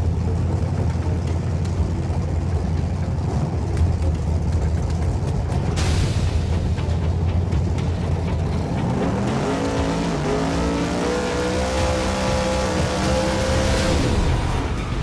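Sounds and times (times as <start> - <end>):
race car engine at high revs: 7.5 - 15.0.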